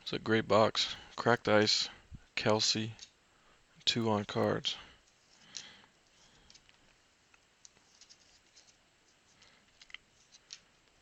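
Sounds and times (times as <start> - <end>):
trading cards being handled: 3.9 - 11.0.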